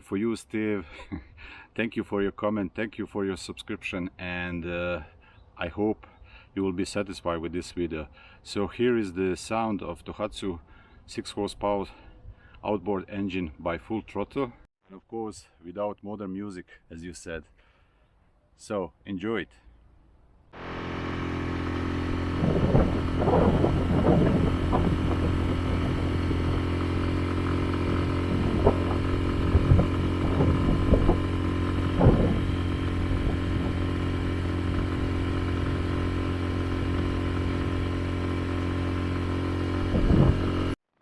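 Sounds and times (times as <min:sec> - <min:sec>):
outboard motor running: 0:20.6 - 0:40.8.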